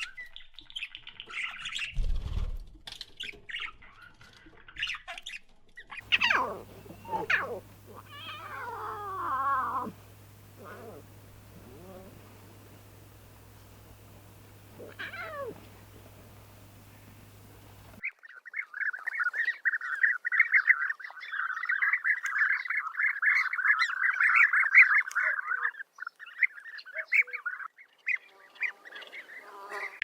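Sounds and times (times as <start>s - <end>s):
flock of birds calling: 6.0s - 18.2s.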